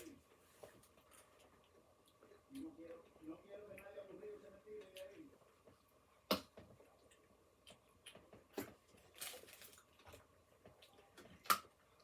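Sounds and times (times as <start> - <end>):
paper packaging rustling: 9.1 - 9.8.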